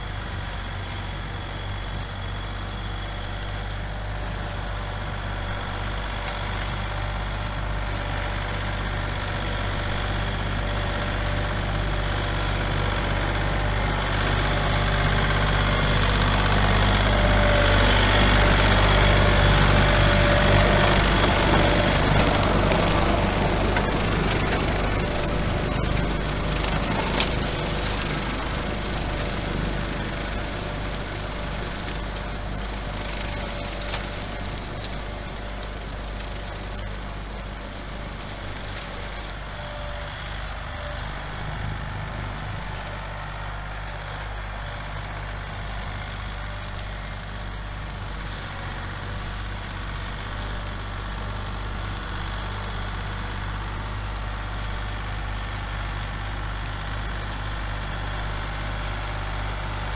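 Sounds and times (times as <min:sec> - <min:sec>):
tractor engine running: 0:00.0 - 0:59.9
rotary cutter cutting weeds: 0:05.3 - 0:39.3, 0:48.1 - 0:59.9.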